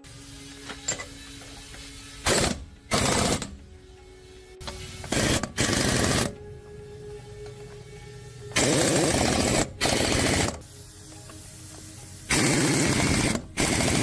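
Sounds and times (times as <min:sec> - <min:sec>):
power tool rattling: 0:00.0 - 0:03.7, 0:04.6 - 0:06.4, 0:08.5 - 0:10.6, 0:12.3 - 0:14.0
faint background music: 0:00.0 - 0:14.0.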